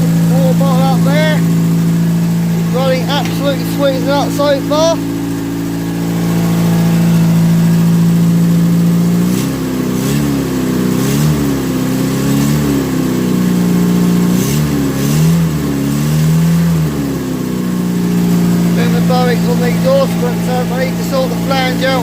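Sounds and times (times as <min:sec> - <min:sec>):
car engine idling and revving: 0:00.0 - 0:22.0
exhaust blowing: 0:00.0 - 0:22.0.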